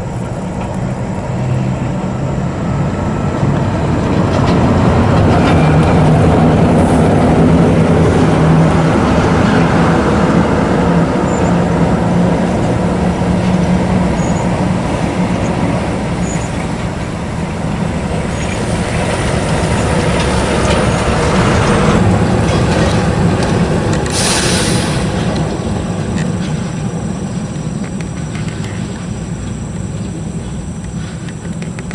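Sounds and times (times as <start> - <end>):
diesel truck engine running: 0.0 - 31.9
road and rolling noise: 0.0 - 31.9
sharp hiss of air: 24.1 - 25.4.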